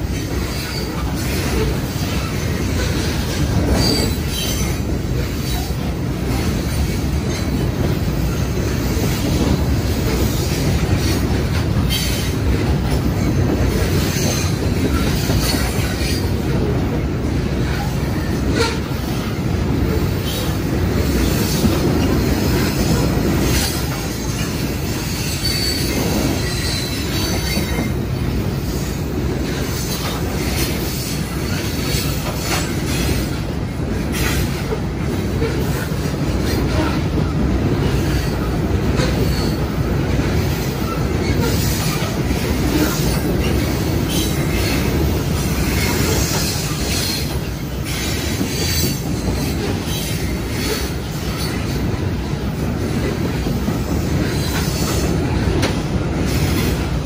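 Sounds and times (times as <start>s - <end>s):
train wheels rumbling on rail: 0.0s - 57.0s
high wheel squeals: 2.0s - 4.8s, 25.1s - 27.9s.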